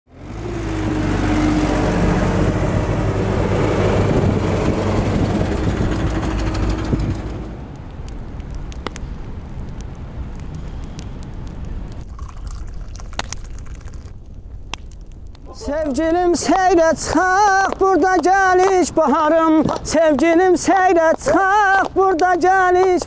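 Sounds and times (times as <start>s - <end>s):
vehicle engine humming: 0.1s - 12.1s
low rumble: 0.4s - 17.8s
sharp crackles: 5.5s - 23.0s.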